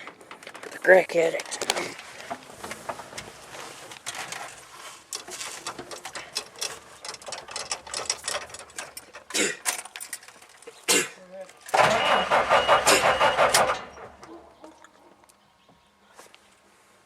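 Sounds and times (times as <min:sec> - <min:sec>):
metallic clicking and rattling: 0:00.0 - 0:10.8.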